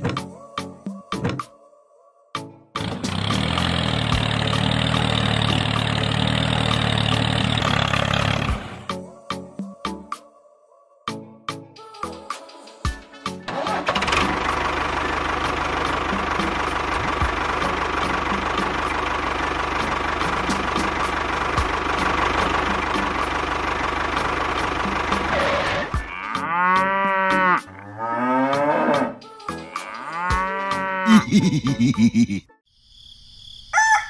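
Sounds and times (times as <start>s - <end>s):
tractor engine running: 2.8s - 8.9s, 13.5s - 26.5s
cow mooing: 25.3s - 31.3s.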